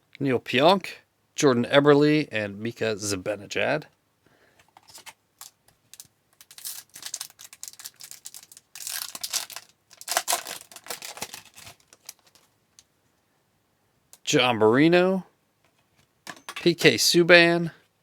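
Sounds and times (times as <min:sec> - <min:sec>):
foil wrapper crinkling and tearing: 0:04.8 - 0:12.5.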